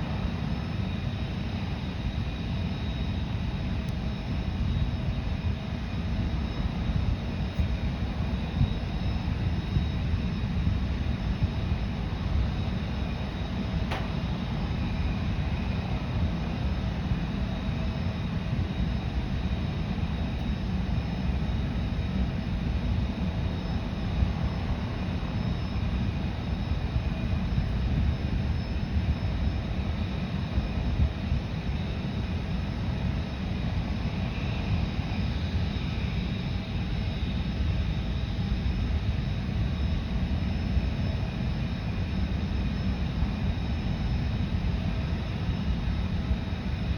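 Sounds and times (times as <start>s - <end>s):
high engine whine: 0.0s - 30.8s
jet engines rumbling: 0.0s - 46.9s
brief click: 13.9s - 14.1s.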